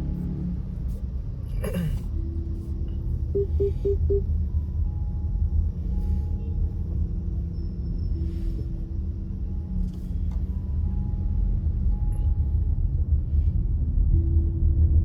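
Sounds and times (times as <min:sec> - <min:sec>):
car cabin rumble: 0:01.0 - 0:05.2
short beeps: 0:03.3 - 0:04.2.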